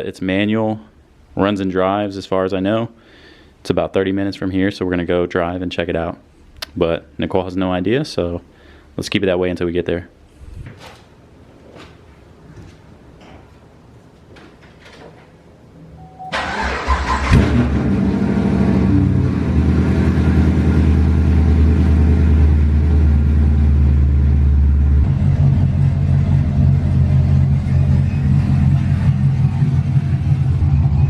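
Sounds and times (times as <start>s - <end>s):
car engine starting and running: 16.3s - 31.0s.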